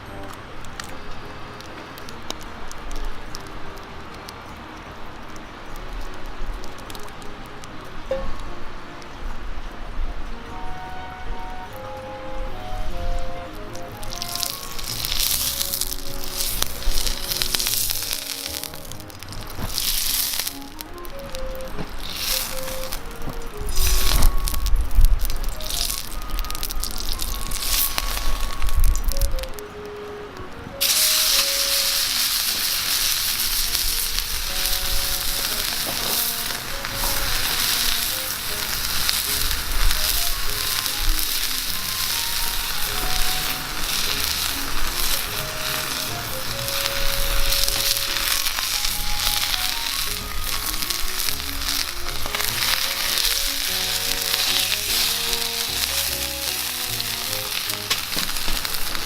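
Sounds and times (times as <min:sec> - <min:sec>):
food sizzling in a pan: 0:13.8 - 0:29.4, 0:30.8 - 0:59.0.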